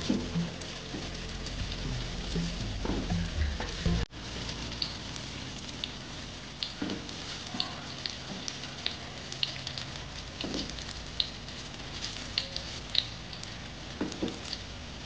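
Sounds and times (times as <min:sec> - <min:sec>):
food sizzling in hot oil: 0:00.0 - 0:15.0
oil popping and crackling: 0:00.0 - 0:15.0.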